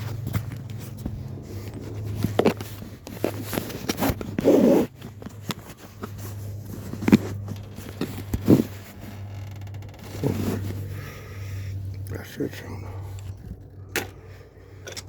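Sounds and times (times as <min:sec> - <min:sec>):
handling clicks and scrapes: 0:00.0 - 0:15.0
steady low hum: 0:00.0 - 0:15.0
rasping zipper-like burst: 0:04.0 - 0:05.0, 0:08.2 - 0:09.2, 0:10.0 - 0:11.5.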